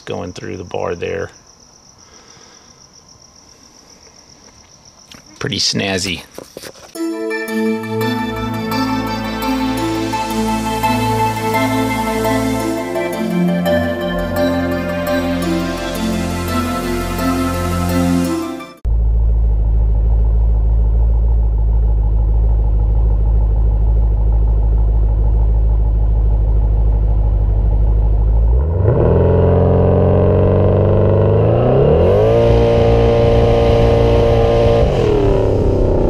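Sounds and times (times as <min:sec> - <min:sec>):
car engine revving: 0:07.5 - 0:36.0.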